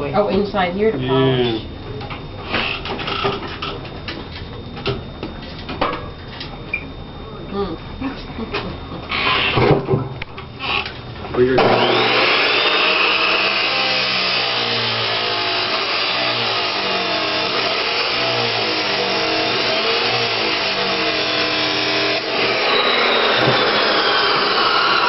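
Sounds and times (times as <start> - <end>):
electric grinder on steel: 11.6 - 25.0.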